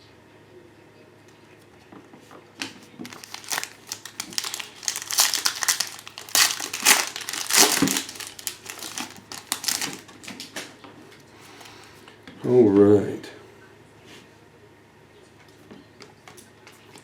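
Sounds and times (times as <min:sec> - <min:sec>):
foil wrapper crinkling and tearing: 0:02.6 - 0:10.7.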